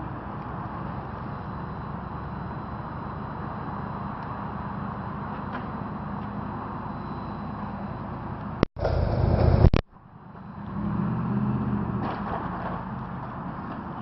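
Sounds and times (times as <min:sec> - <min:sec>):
loud burst of noise: 0:08.8 - 0:09.9.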